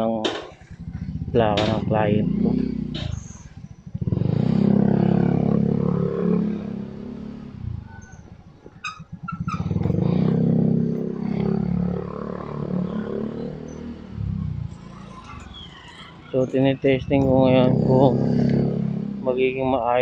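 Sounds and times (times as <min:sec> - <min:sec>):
motorcycle engine: 0:00.0 - 0:20.0.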